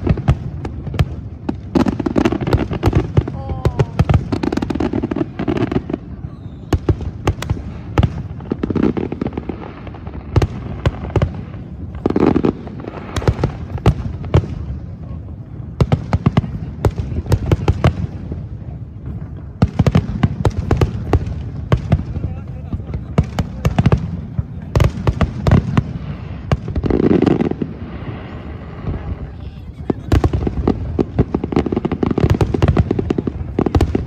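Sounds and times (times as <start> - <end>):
fireworks crackling: 0.0 - 34.0
fireworks cracks and bangs: 0.0 - 34.0.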